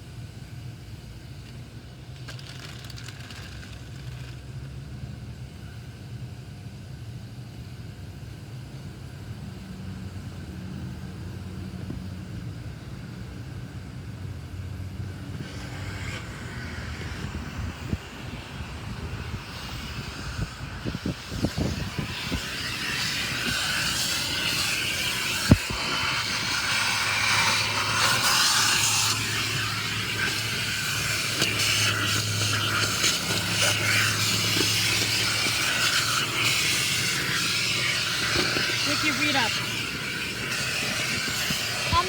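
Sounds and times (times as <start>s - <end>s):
car wash rushing hiss: 14.9s - 42.0s.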